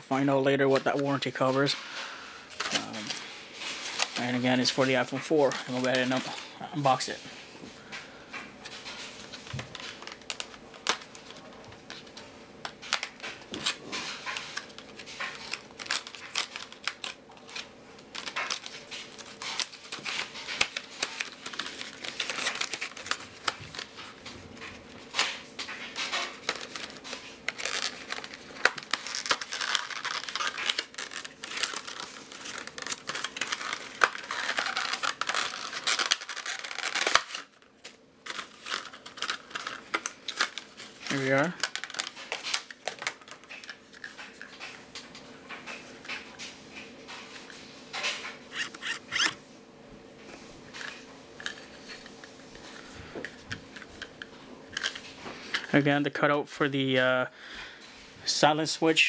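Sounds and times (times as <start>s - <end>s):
packaging crinkling and tearing: 0.8s - 7.2s, 8.7s - 49.4s.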